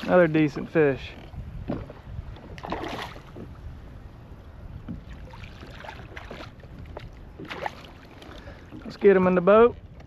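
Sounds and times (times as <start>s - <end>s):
low rumble of wind: 0.0s - 10.0s.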